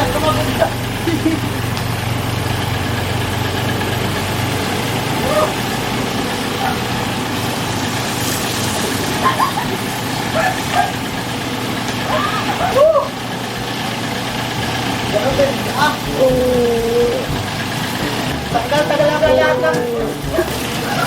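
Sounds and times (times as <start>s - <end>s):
low machine hum: 12.1s - 21.0s.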